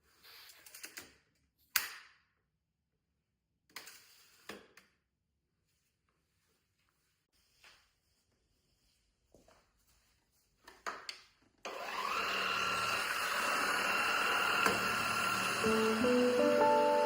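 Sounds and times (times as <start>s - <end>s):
stick vacuum motor whine: 11.7s - 17.0s.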